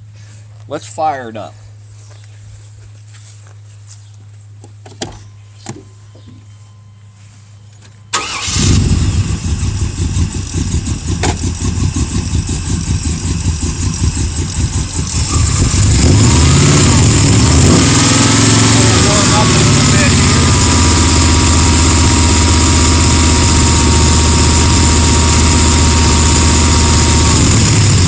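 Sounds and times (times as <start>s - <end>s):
v eight engine uneven idle: 8.1s - 28.0s.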